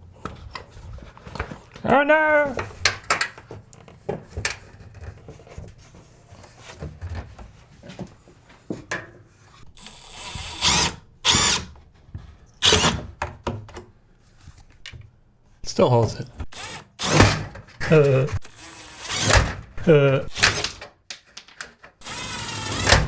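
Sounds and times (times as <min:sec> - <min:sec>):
cordless drill driving screw: 0:09.8 - 0:11.7, 0:12.6 - 0:13.1, 0:16.5 - 0:19.7, 0:20.3 - 0:20.8, 0:22.0 - 0:23.0.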